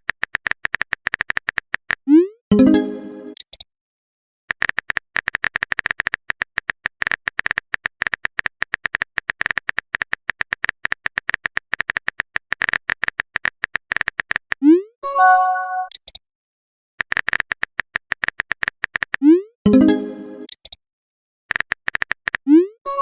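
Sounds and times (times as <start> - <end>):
keyboard typing clicks: 0.0 - 3.6, 4.5 - 14.6, 15.8 - 16.2, 17.0 - 20.8, 21.5 - 22.6
chiming tone: 2.5 - 3.4.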